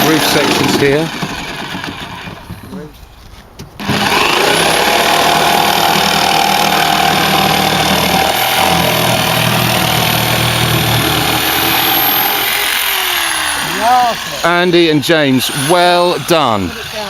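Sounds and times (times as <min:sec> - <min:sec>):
electric jigsaw cutting: 0:00.0 - 0:02.4, 0:03.8 - 0:17.0.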